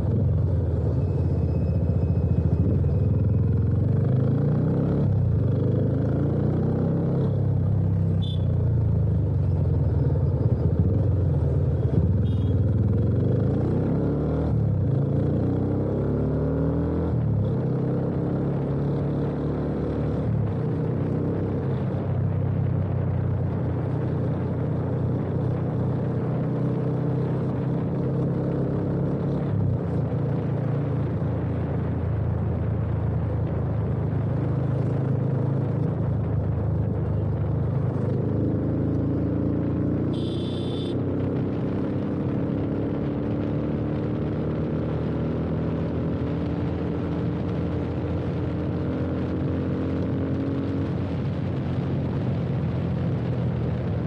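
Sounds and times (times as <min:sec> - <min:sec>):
short high-pitched beep: 0:00.9 - 0:03.4
motorcycle engine running: 0:26.8 - 0:45.8.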